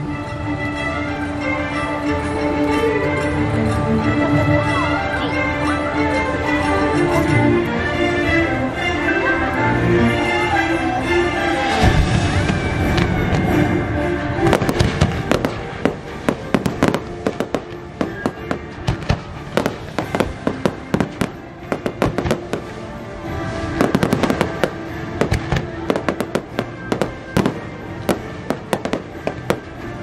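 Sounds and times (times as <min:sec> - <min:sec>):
orchestral music: 0:00.0 - 0:30.0
fireworks bursting: 0:11.8 - 0:30.0.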